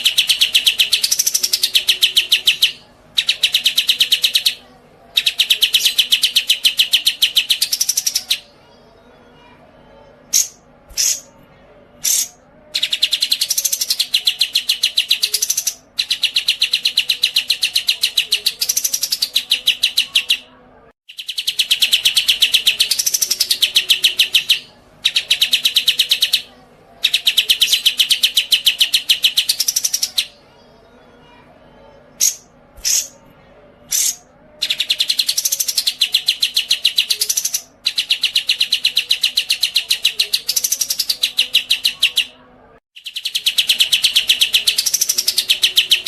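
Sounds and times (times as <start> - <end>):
songbird trilling: 0.0 - 4.6
bird chirps: 0.0 - 8.5, 10.3 - 11.4, 12.0 - 30.5, 31.8 - 33.2, 33.9 - 42.4, 43.0 - 46.0.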